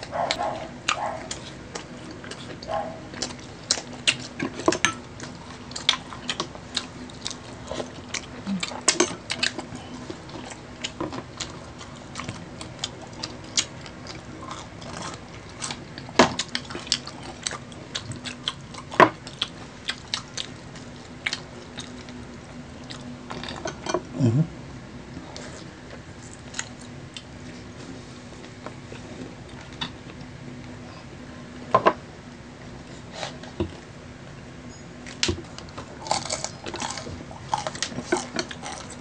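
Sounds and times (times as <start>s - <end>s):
chewing and biting food: 0.0s - 23.9s, 25.2s - 27.7s, 35.1s - 39.0s.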